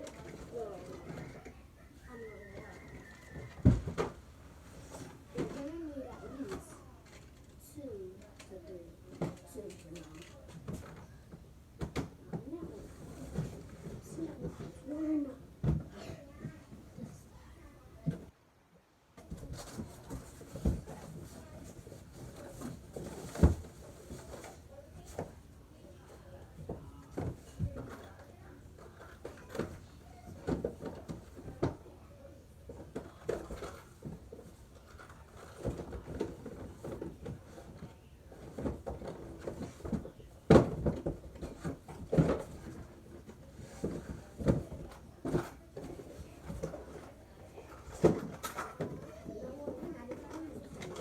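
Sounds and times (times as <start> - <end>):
faint voices: 0.0 - 18.3, 19.2 - 51.0
knocks bumps and clatters: 2.6 - 4.2.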